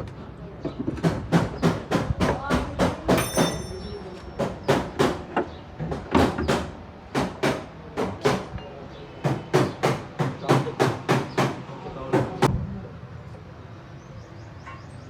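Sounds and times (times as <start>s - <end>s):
hammer blows on metal: 1.3s - 5.2s.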